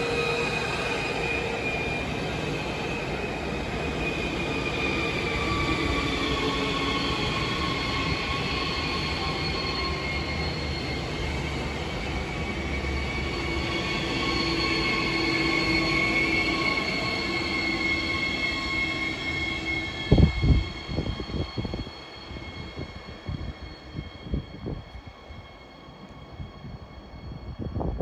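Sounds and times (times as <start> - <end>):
high squealing tones: 0.0 - 28.0
train low rumble: 0.0 - 28.0.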